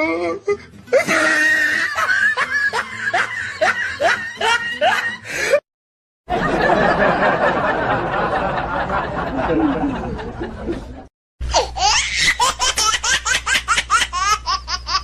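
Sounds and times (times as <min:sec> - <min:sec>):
dense laughter: 0:01.0 - 0:05.6, 0:06.3 - 0:11.1.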